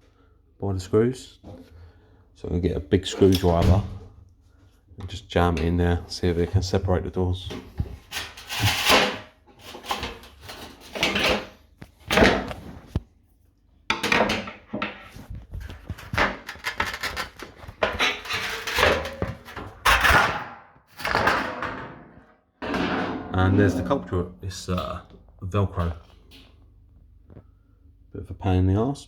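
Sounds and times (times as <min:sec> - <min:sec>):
screwdriver scraping and knocking panel: 0:14.5 - 0:20.1.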